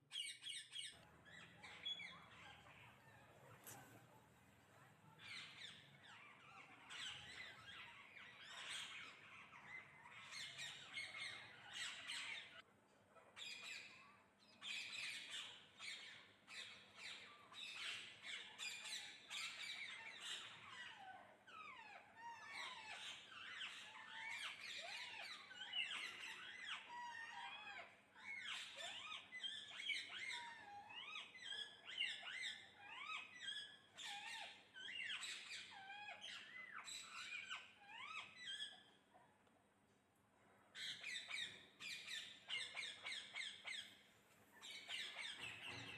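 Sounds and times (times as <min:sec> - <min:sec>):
parrots squawking and chattering: 0:00.1 - 0:39.4, 0:40.5 - 0:45.9.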